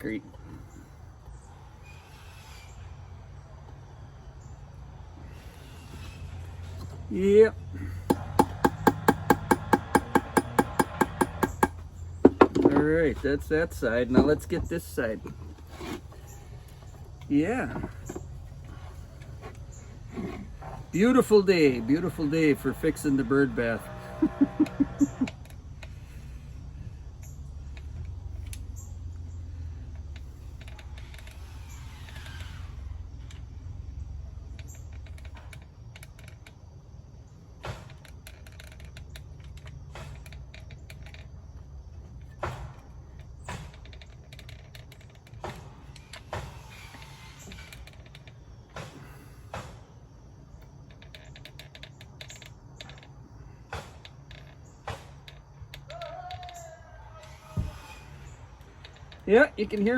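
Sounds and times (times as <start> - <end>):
sharp knocks and clicks: 8.0 - 13.4, 42.0 - 50.0, 50.6 - 56.6.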